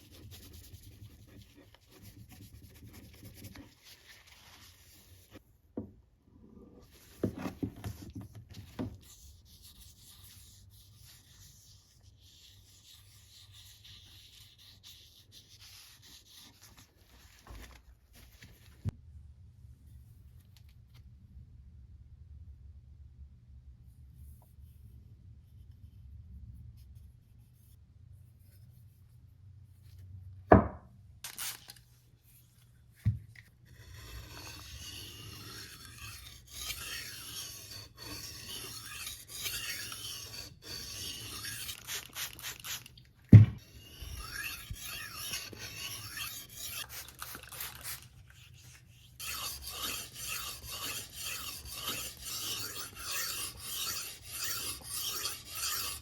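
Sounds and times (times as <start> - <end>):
hand file rasping against metal: 33.7 - 42.7, 43.6 - 48.0, 49.1 - 56.0.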